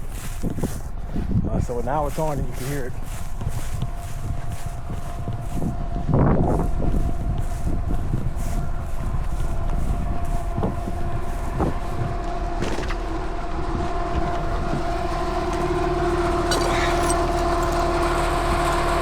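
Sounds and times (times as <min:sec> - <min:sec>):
air conditioner unit humming: 0:03.9 - 0:19.0.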